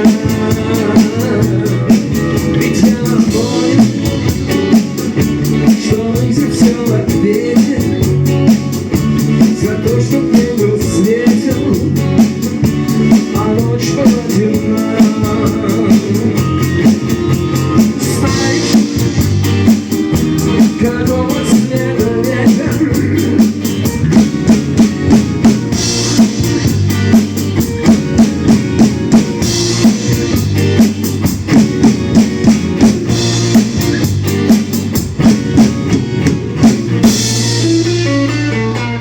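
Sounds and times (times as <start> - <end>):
person singing: 0.0 - 4.6, 5.5 - 8.5, 9.2 - 19.4, 20.4 - 23.9
drum kit beat: 0.0 - 39.0
rock band playing live: 0.0 - 39.0.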